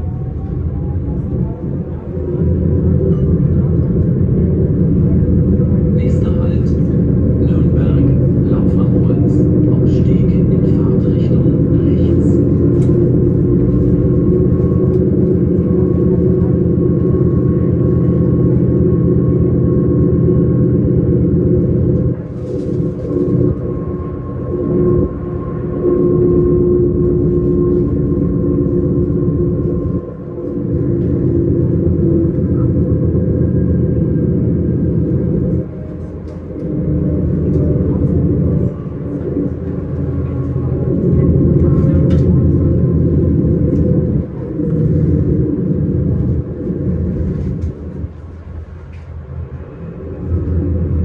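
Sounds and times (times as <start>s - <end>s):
faint steady whine: 0.0s - 51.0s
motor hum: 0.0s - 51.0s
train rumbling: 0.0s - 51.0s.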